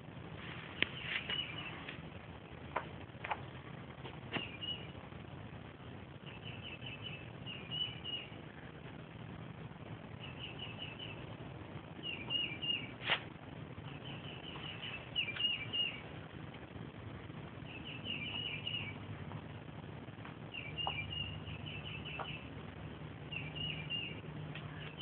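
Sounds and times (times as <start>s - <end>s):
small bird chirping: 0.7s - 1.9s, 4.3s - 5.0s, 6.2s - 8.5s, 10.1s - 13.0s, 13.8s - 16.2s, 17.6s - 19.1s, 20.5s - 22.6s, 23.2s - 25.0s.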